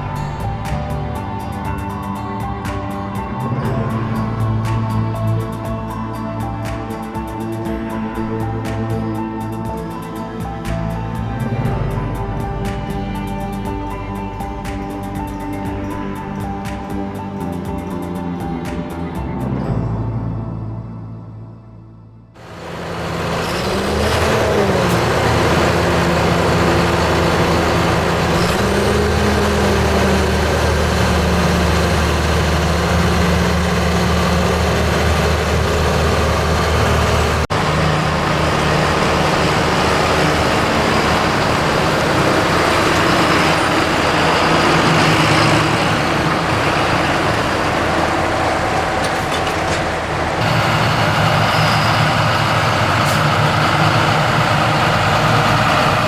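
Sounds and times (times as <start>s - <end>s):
diesel farm machinery engines: 0.0s - 19.7s, 22.4s - 56.0s.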